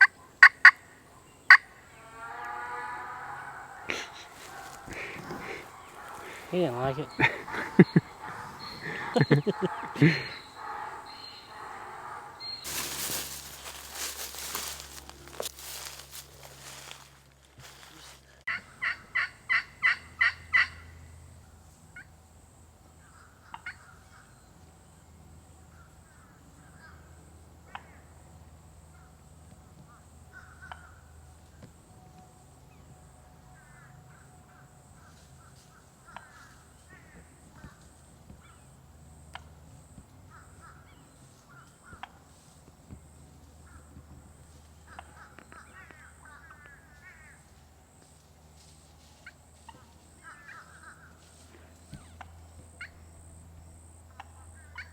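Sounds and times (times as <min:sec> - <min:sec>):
turkey yelps: 0:00.0 - 0:15.0, 0:18.5 - 0:20.8
distant calls and clicks: 0:00.0 - 0:17.0, 0:30.3 - 0:31.7, 0:35.0 - 0:43.0.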